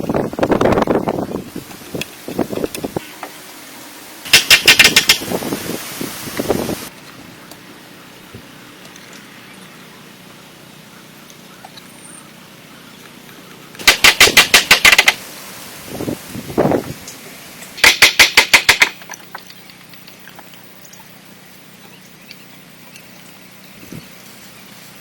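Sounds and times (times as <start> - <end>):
rapid sharp knocking: 4.3 - 5.3, 13.8 - 15.2, 17.8 - 19.1.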